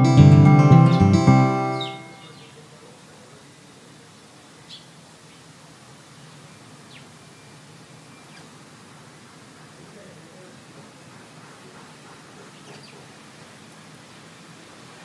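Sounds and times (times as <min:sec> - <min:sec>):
birds chirping: 0:00.0 - 0:02.5
woodland ambience hiss: 0:02.1 - 0:15.0.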